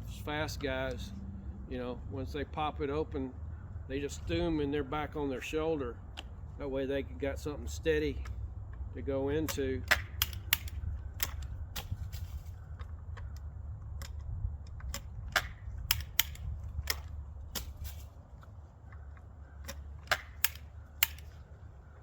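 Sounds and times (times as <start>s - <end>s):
low steady rumble: 0.0s - 22.0s
shotgun action clicking: 9.4s - 12.0s, 12.7s - 21.5s.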